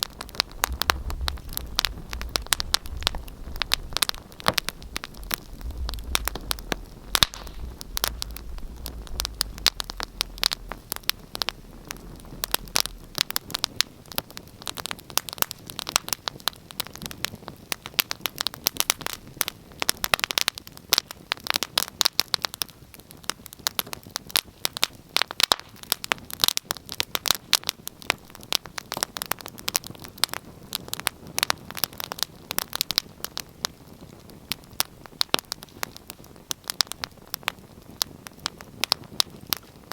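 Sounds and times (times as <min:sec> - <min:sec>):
low hum: 0:00.0 - 0:13.6
wood fire crackling: 0:00.0 - 0:39.9.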